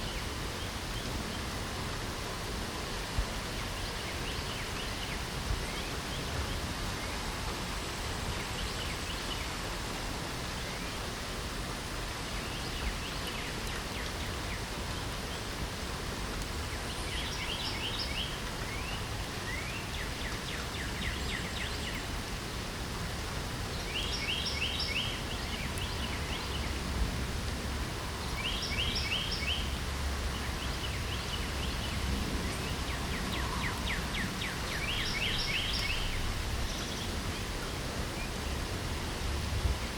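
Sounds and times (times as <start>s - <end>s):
rain hiss: 0.0s - 39.9s
songbird singing rapid notes: 23.7s - 26.8s, 28.2s - 38.6s.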